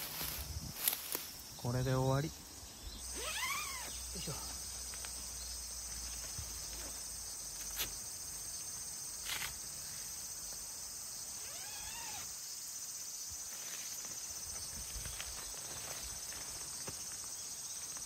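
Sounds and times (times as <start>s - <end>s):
high-pitched insect buzzing: 2.9s - 4.5s, 11.2s - 12.4s.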